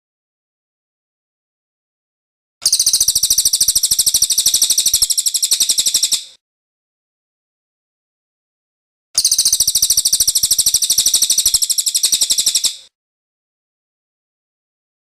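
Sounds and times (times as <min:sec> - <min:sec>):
bird high rapid trill: 0:02.6 - 0:06.4, 0:09.2 - 0:12.9.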